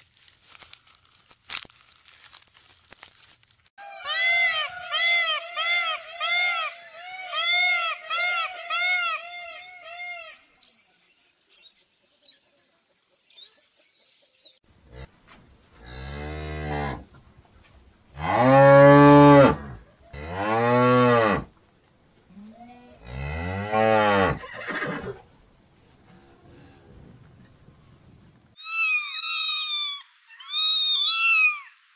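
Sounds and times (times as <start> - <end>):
peacock calling: 3.8 - 10.6, 28.6 - 31.9
cattle mooing: 15.8 - 17.1, 18.2 - 21.5, 22.4 - 24.4.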